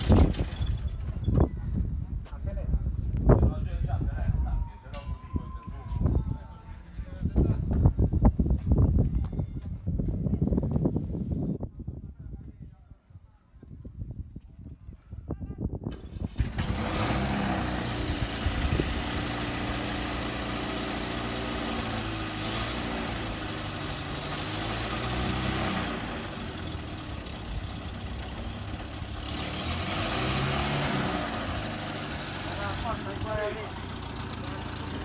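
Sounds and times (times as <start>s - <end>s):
van engine starting and running: 0.0s - 1.6s, 15.9s - 35.0s.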